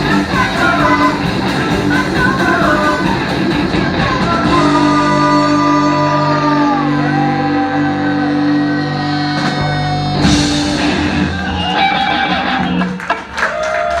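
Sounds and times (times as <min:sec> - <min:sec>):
live rock band playing: 0:00.0 - 0:13.6
loud drum hit: 0:09.4 - 0:12.5.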